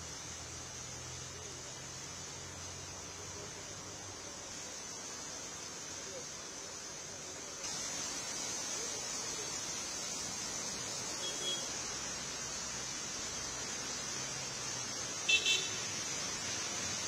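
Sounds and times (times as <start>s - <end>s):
heavy rain hiss: 0.0s - 17.0s
vehicle horn beep: 11.2s - 11.7s, 15.3s - 15.8s.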